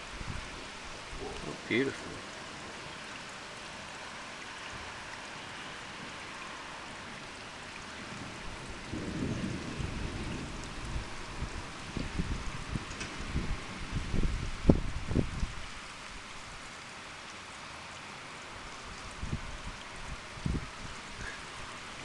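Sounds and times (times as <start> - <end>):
rain hiss: 0.0 - 22.0
thunder rumbling: 8.1 - 15.5.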